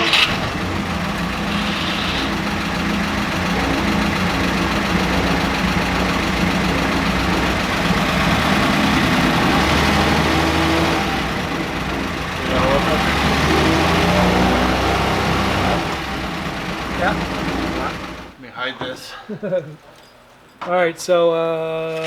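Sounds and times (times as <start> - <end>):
jeep engine idling: 0.0 - 18.4.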